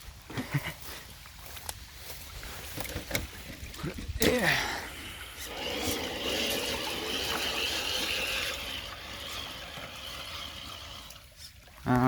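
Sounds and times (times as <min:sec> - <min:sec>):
electric motor and gears whining: 0:05.4 - 0:11.2.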